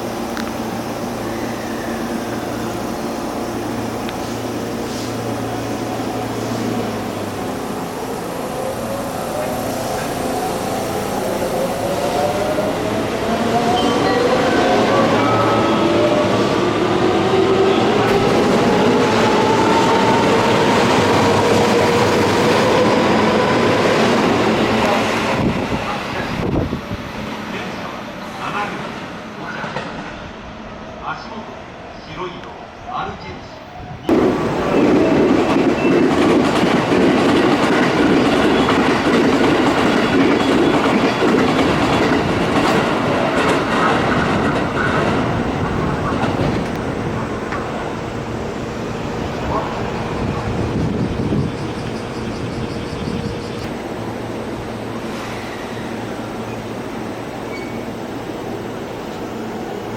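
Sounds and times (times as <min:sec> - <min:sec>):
electric train passing at speed: 0:00.0 - 0:59.9
train wheels rumbling: 0:33.8 - 0:59.9.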